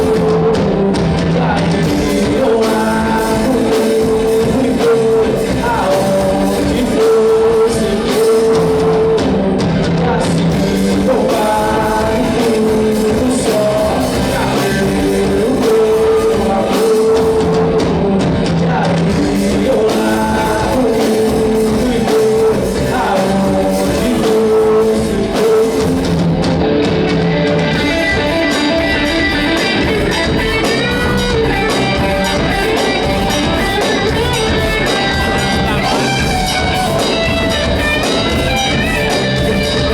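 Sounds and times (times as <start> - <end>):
man singing lead vocal: 0.0 - 39.9
rock band playing: 0.0 - 39.9.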